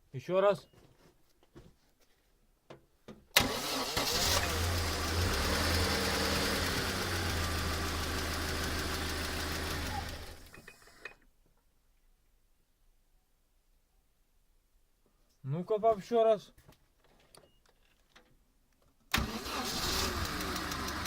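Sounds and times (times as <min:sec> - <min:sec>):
car engine starting and idling: 0:03.4 - 0:11.0, 0:19.1 - 0:21.0.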